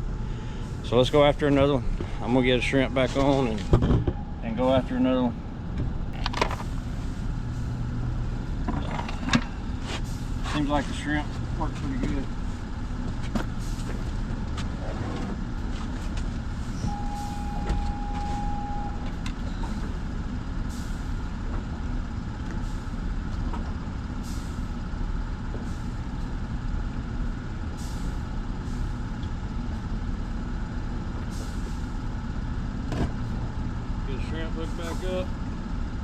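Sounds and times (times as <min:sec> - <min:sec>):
machinery rumbling: 0:00.0 - 0:36.0
steady high tone: 0:16.8 - 0:19.2.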